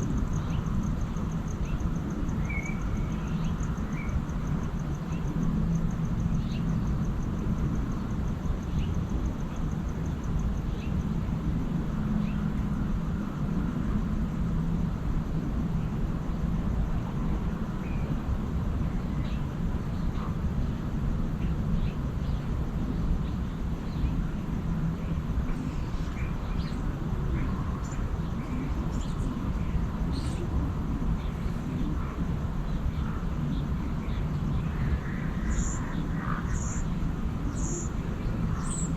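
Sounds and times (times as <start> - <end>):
steady low rumble: 0.0 - 38.9
birds chirping: 31.2 - 38.9.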